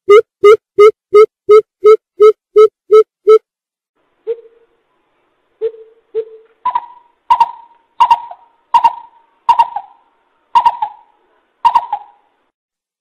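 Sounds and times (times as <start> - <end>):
coucal hooting: 10.6 - 12.3.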